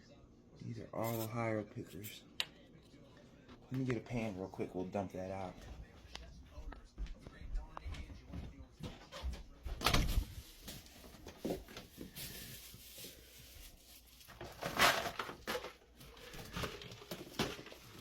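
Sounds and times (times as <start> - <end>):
plastic pan clatter: 14.3 - 18.0.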